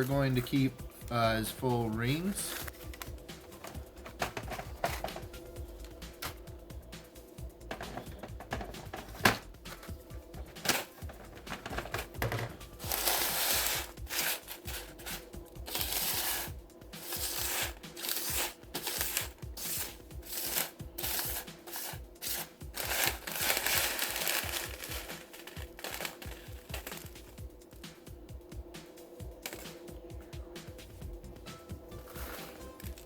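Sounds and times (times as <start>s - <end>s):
dried pepper rings rustling: 0.0s - 4.1s, 9.7s - 27.6s, 31.9s - 33.0s
background music: 0.0s - 33.0s
plastic bag crinkling: 12.8s - 15.0s, 18.0s - 27.4s.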